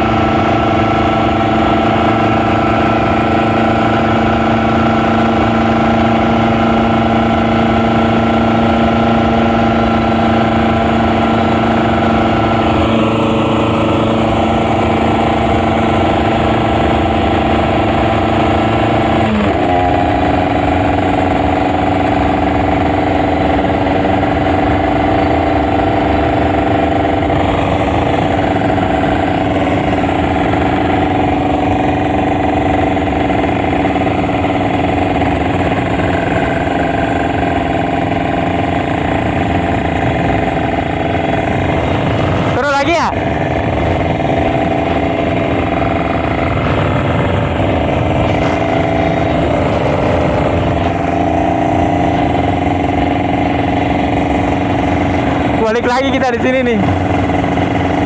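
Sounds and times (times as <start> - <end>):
two-stroke motorcycle engine running: 0.0 - 58.0.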